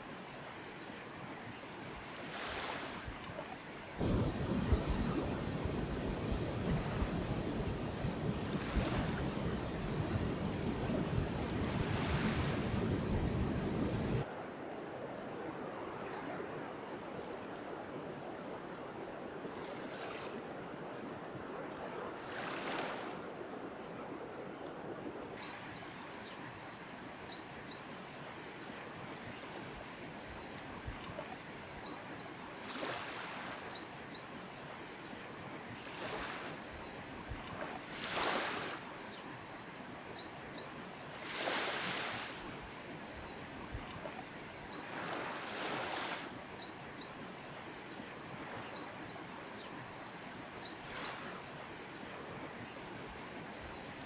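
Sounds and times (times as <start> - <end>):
small waves washing on beach: 2.2 - 3.2, 4.0 - 25.4, 32.6 - 34.1, 35.6 - 40.2, 40.8 - 54.0
surf noise: 4.0 - 25.4.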